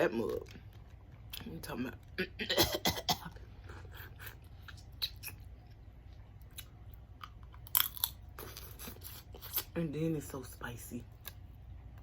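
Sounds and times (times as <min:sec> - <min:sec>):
chewing and smacking: 0:04.2 - 0:09.7.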